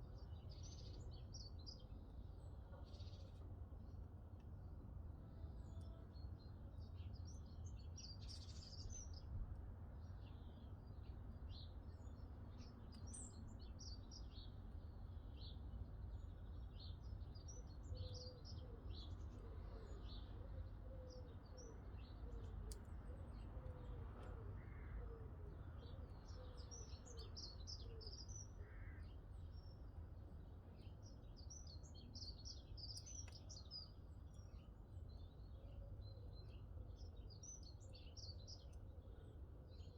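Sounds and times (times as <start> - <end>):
small birds chirping: 25.7 - 39.9.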